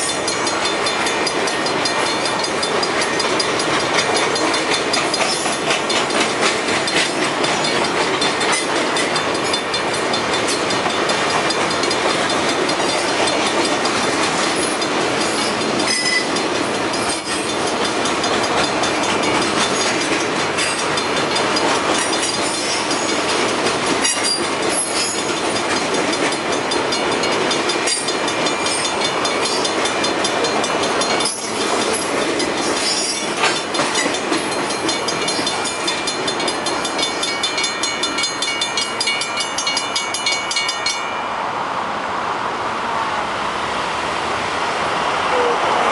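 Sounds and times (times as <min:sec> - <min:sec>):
rail clicks: 0:00.0 - 0:42.0
train wheels rumbling on rails: 0:00.0 - 0:45.9
high wheel squeals: 0:14.6 - 0:17.7, 0:24.0 - 0:25.3, 0:31.0 - 0:35.9.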